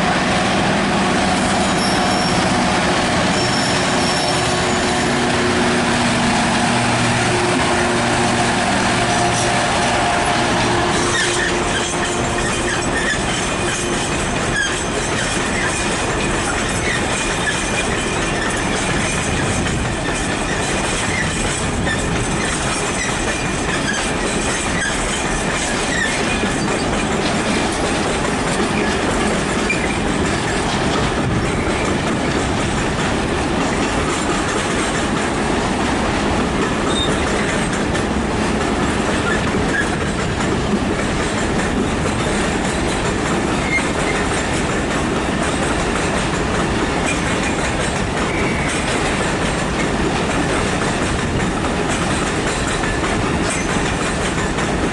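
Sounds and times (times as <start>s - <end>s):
freight train rolling past: 0.0s - 54.9s
faint wheel squeal: 1.6s - 2.5s, 3.4s - 4.8s
wheels clattering over rail joints: 10.2s - 54.9s.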